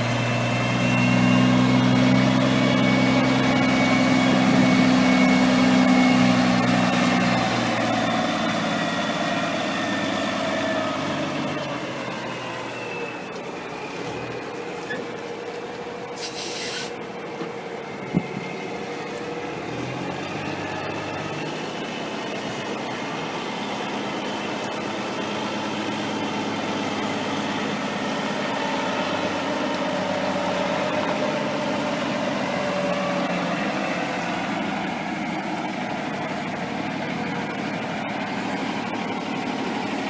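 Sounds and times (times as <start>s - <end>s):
diesel truck engine running: 0.0s - 40.0s
short air hiss: 16.2s - 17.0s.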